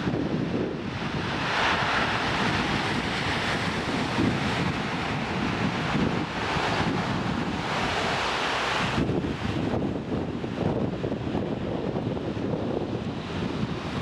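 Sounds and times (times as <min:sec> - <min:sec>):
wind buffeting microphone: 0:00.0 - 0:14.0
train rushing past: 0:01.3 - 0:09.0.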